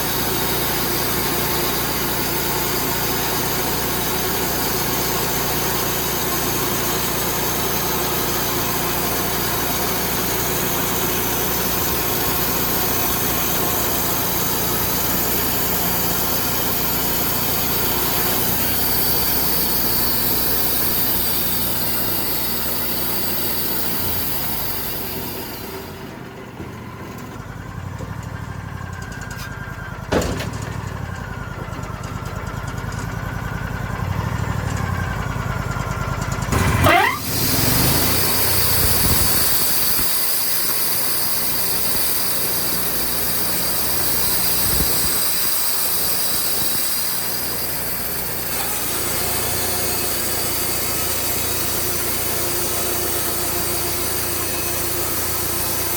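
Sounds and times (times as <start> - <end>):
engine running: 0.0 - 55.9
dense hissing noise: 8.2 - 26.0, 36.9 - 55.9.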